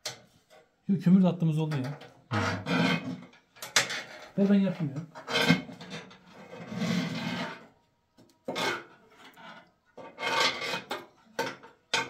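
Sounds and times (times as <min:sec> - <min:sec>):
metal scoop scraping ash: 0:02.3 - 0:07.8, 0:08.4 - 0:11.2.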